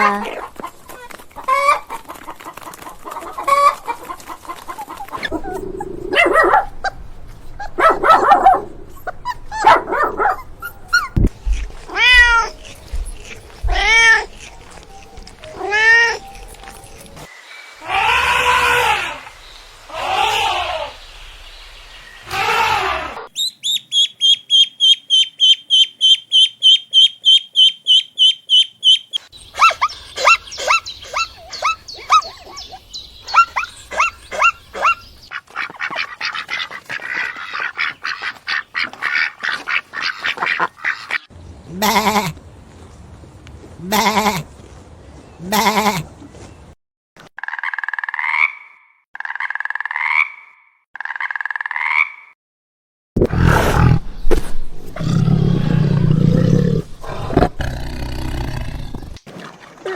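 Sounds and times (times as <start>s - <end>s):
cat meowing and yowling: 11.8s - 12.7s, 13.6s - 14.3s, 15.5s - 16.3s.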